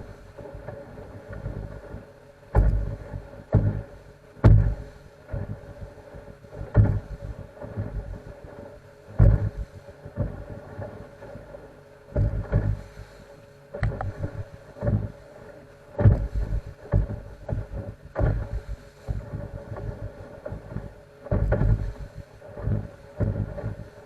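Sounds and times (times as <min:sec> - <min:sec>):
boat engine drone: 0:00.0 - 0:24.0
wind buffeting microphone: 0:13.7 - 0:15.2.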